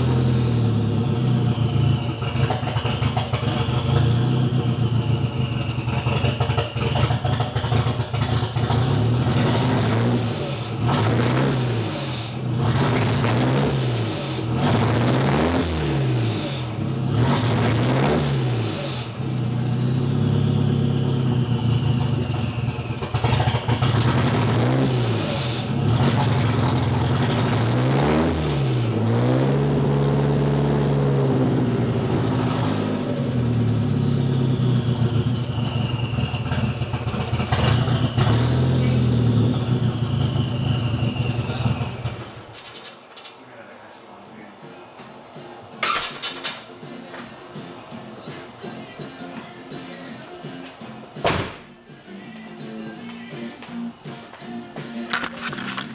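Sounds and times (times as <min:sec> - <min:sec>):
turbocharged engine revving: 0:00.0 - 0:42.6
engine misfiring: 0:00.0 - 0:43.4, 0:44.7 - 0:48.3, 0:55.1 - 0:55.9.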